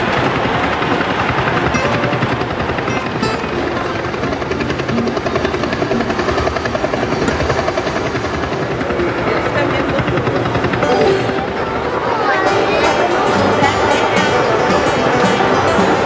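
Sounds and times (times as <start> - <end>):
model trains rattling on track: 0.0 - 10.8.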